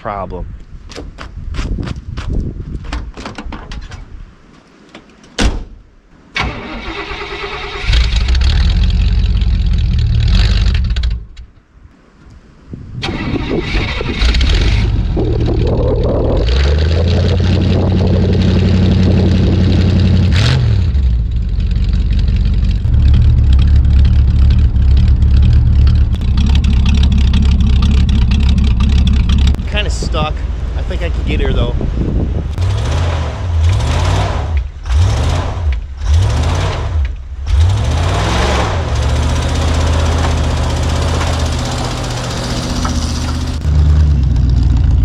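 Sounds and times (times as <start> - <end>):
car engine running and revving: 14.3 - 29.8, 32.4 - 45.0.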